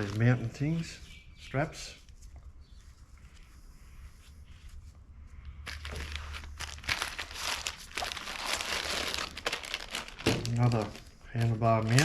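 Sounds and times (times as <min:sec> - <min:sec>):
plastic packaging crinkling: 0:00.0 - 0:00.6, 0:05.6 - 0:12.0.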